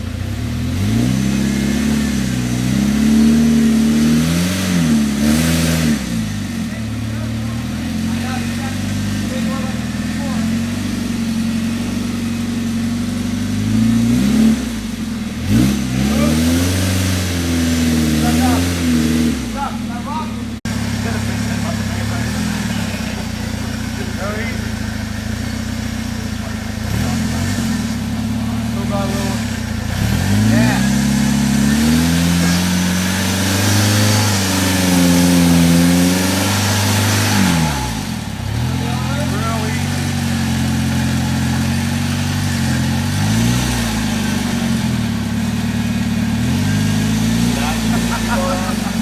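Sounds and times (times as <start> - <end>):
car engine idling and revving: 0.0 - 49.0.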